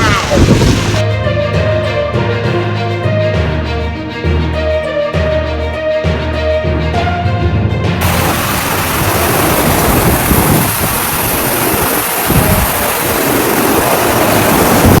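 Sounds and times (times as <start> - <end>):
heavy rain: 0.0 - 1.0, 8.0 - 15.0
wind gusts on microphone: 0.0 - 1.0, 8.0 - 15.0
wind roaring: 0.0 - 1.1, 8.0 - 15.0.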